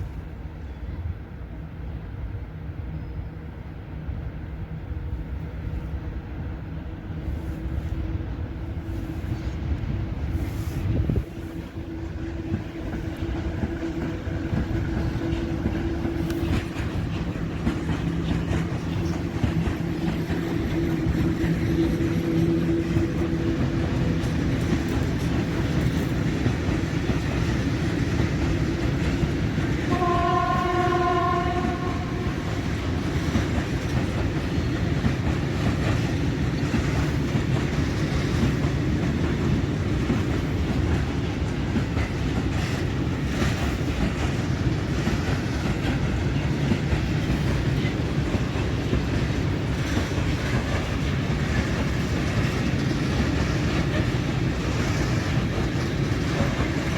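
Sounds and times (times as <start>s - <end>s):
wheels rumbling on rail: 0.0s - 56.9s
train horn: 29.1s - 33.4s.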